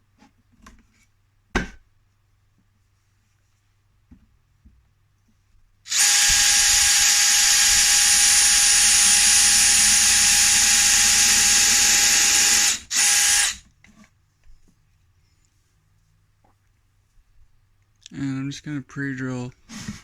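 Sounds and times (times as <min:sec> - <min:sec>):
electric drill drilling wood: 0:05.9 - 0:13.6.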